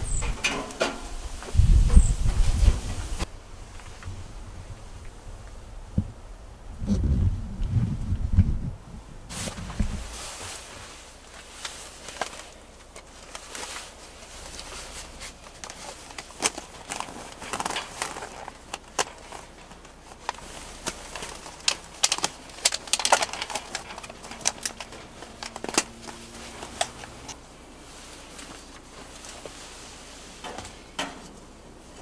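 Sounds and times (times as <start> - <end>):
rustling: 9.3 - 32.0.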